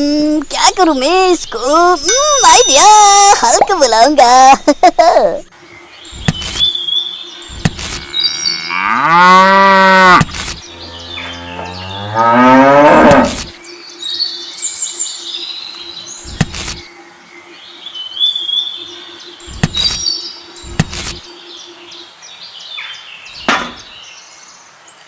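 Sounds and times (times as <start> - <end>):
birds chirping: 0.0 - 25.0
cow mooing: 8.0 - 13.5.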